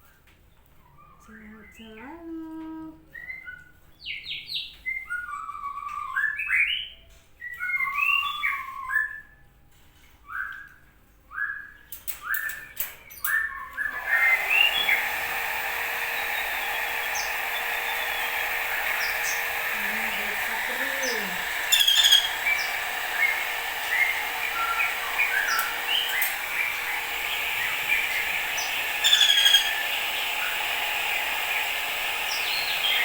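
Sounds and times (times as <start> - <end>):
bird chirping: 11.4 - 33.0
steady hiss: 14.0 - 33.0.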